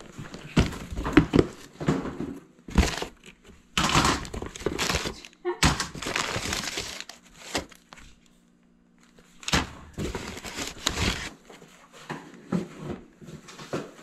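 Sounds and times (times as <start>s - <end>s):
clattering knocks of items: 0.0s - 7.8s, 9.4s - 14.0s
rustling: 9.4s - 11.7s.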